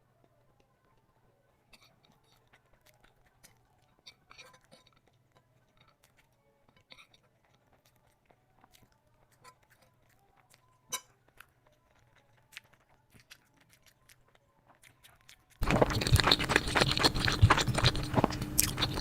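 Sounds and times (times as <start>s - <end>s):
chewing crunches: 1.8s - 19.0s
wet mouth clicks: 14.8s - 19.0s.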